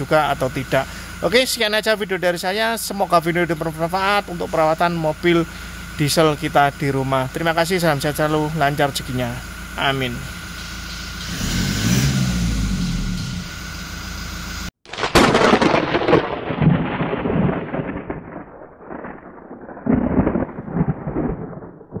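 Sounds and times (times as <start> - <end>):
diesel engine running: 0.0 - 14.8
loud thunder-like rumble: 15.0 - 22.0.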